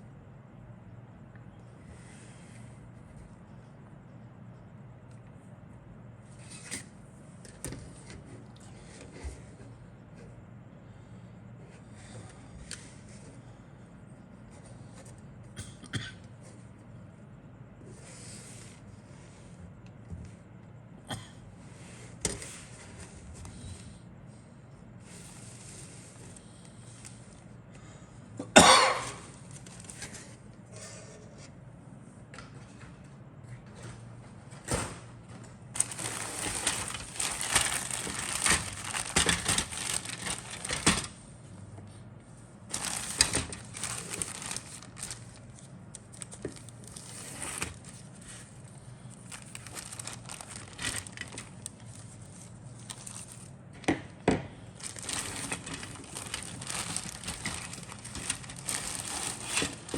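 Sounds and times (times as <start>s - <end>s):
plastic bags crinkling: 35.7s - 41.2s, 42.6s - 53.7s, 54.7s - 59.9s.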